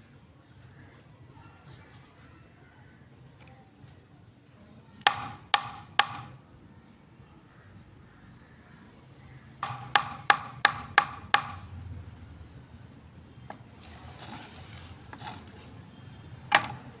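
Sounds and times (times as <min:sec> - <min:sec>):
knife chopping on wooden board: 0:09.6 - 0:11.6
knife scraping board: 0:13.8 - 0:15.8.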